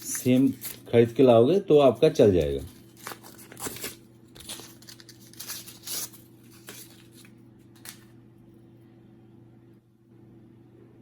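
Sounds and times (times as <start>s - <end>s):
crinkling rustling handling noises: 0.0s - 8.2s
low electrical hum: 0.0s - 11.0s.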